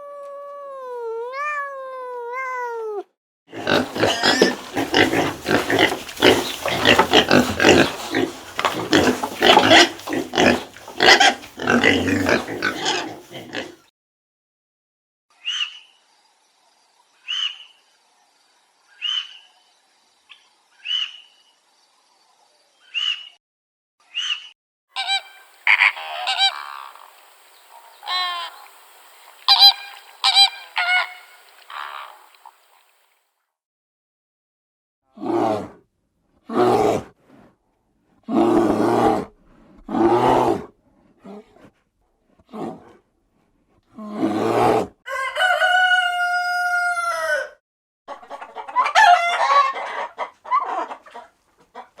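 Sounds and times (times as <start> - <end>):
pigs calling: 3.5 - 13.9, 25.0 - 27.2, 29.4 - 32.5
waterfowl honking: 25.0 - 32.6.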